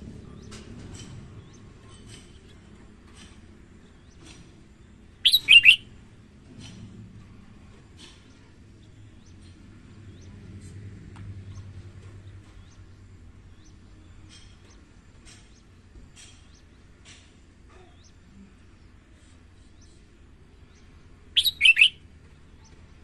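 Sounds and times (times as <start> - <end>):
low steady hum: 0.0 - 23.0
birds chirping and whistling: 3.9 - 6.0, 19.6 - 22.8.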